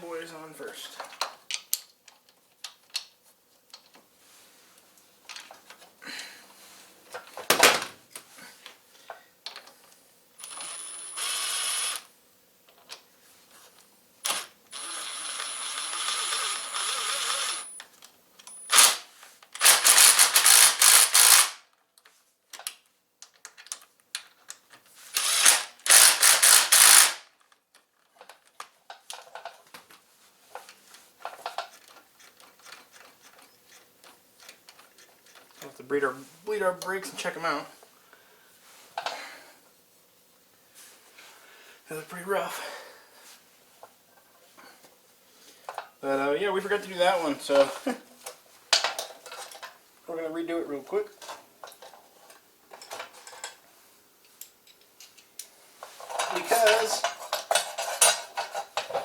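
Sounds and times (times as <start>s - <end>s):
metal tools clinking and ratcheting: 55.9s - 59.0s.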